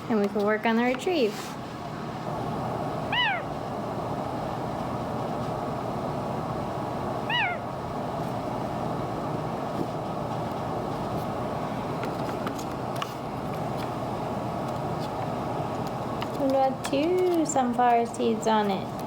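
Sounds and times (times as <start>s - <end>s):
steady background hum: 0.0s - 19.0s
parrot call falling in pitch: 3.1s - 3.5s, 7.3s - 7.7s.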